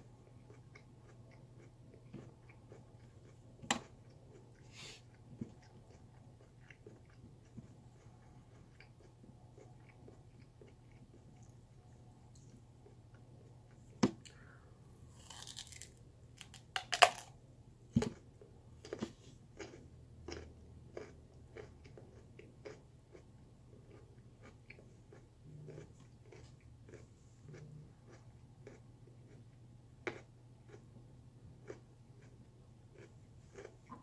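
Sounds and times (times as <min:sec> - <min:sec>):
crunchy chewing: 0:00.2 - 0:14.5, 0:15.1 - 0:17.3, 0:18.0 - 0:30.9, 0:31.6 - 0:34.0.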